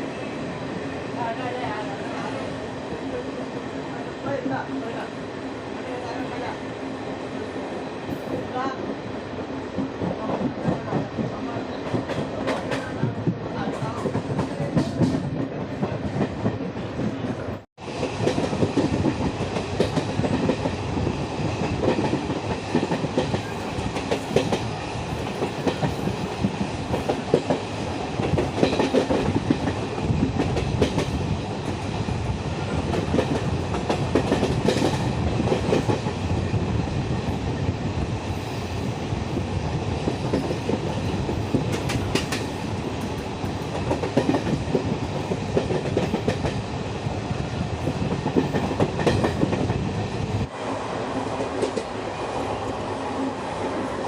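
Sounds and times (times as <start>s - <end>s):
rumble of train coaches: 0.0s - 54.0s
train wheels clattering: 21.6s - 31.8s, 32.7s - 36.2s, 40.0s - 46.6s, 47.9s - 49.9s.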